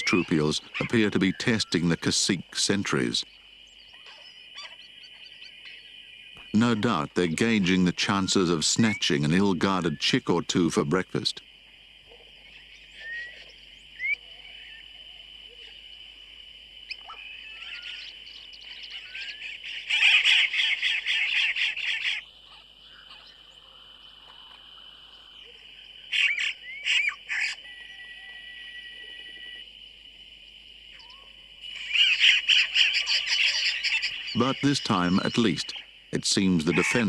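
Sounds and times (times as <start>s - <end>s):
high-pitched bird chorus: 0.0s - 2.1s, 2.9s - 10.4s, 16.9s - 23.6s, 24.4s - 29.6s, 30.9s - 37.0s
harsh bird chattering: 0.0s - 3.2s, 26.1s - 27.6s, 31.8s - 37.0s.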